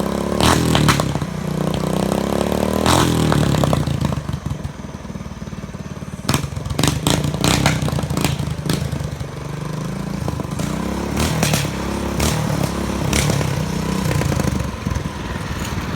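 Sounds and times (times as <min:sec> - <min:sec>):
exhaust backfire pops: 0:00.0 - 0:15.9
small engine revving: 0:00.0 - 0:15.9.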